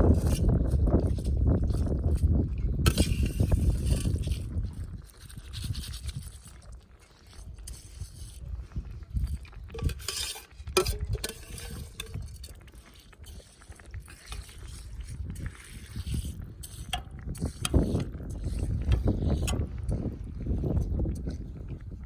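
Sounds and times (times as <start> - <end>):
wind buffeting microphone: 0.0 - 6.6, 7.3 - 22.0
clicks knocks and scrapes: 9.7 - 20.1.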